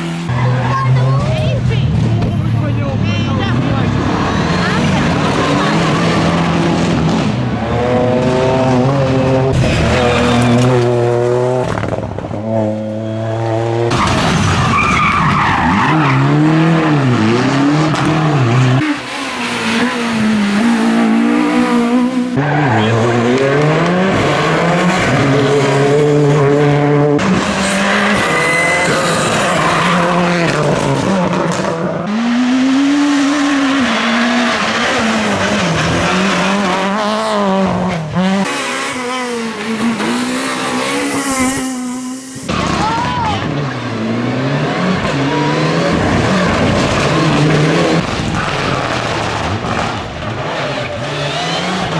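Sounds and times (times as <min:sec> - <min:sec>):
rally car engines revving: 0:00.0 - 0:51.9
tyres squealing and skidding: 0:09.5 - 0:12.0, 0:12.8 - 0:26.3, 0:27.2 - 0:51.9.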